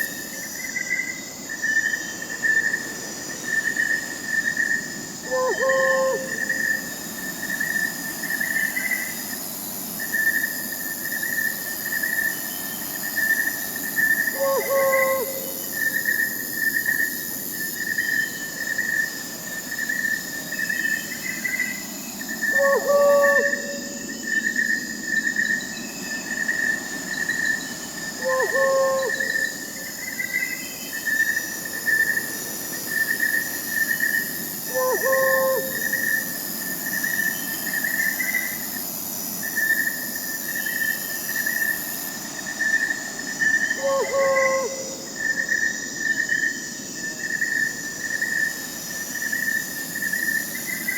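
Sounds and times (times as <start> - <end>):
crickets chirping: 0.0 - 50.9
insects whining: 0.0 - 50.9
owl call: 5.2 - 6.7, 14.3 - 15.8, 22.5 - 24.0, 28.2 - 29.6, 34.7 - 36.2, 43.7 - 45.0.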